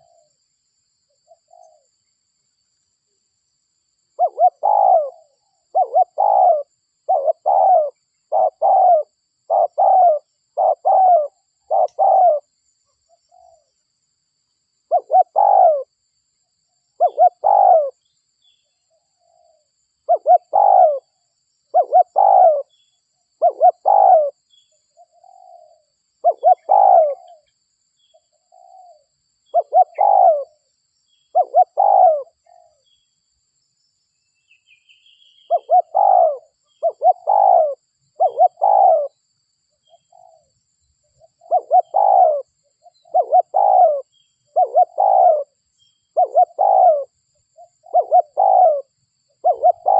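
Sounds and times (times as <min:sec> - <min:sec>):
dove cooing: 0:00.0 - 0:00.3, 0:01.3 - 0:01.9, 0:04.2 - 0:12.5, 0:14.9 - 0:15.9, 0:17.0 - 0:18.0, 0:19.2 - 0:22.8, 0:23.4 - 0:24.4, 0:25.0 - 0:27.5, 0:28.4 - 0:30.6, 0:31.3 - 0:32.8, 0:35.5 - 0:39.2, 0:41.2 - 0:49.9.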